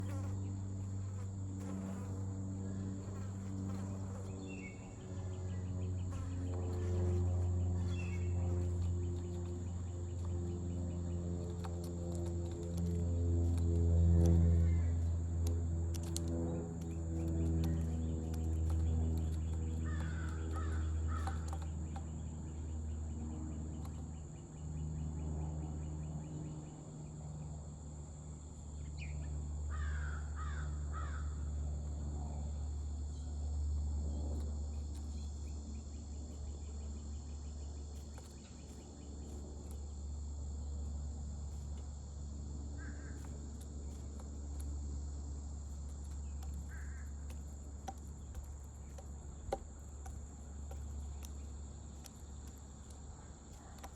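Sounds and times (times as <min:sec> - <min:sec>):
high insect drone: 0:00.0 - 0:53.9
low hum: 0:00.0 - 0:53.9
harsh bird caws: 0:19.7 - 0:21.7, 0:29.7 - 0:31.5, 0:42.8 - 0:43.4, 0:46.7 - 0:47.3.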